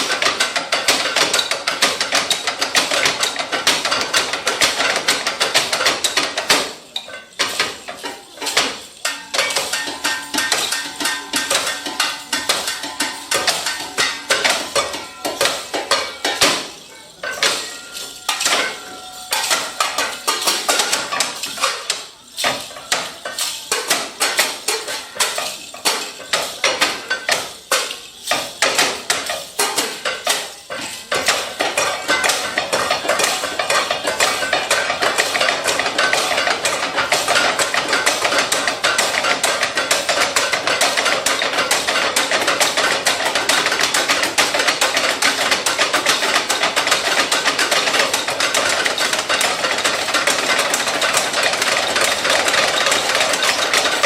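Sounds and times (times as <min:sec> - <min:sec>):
metal tools struck as percussion: 0:00.0 - 0:54.0.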